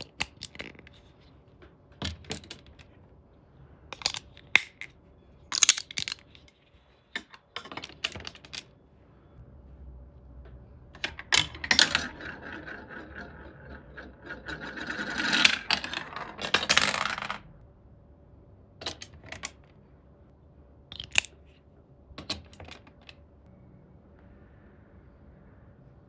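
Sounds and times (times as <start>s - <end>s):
marble rattling down plastic track: 11.0s - 17.5s.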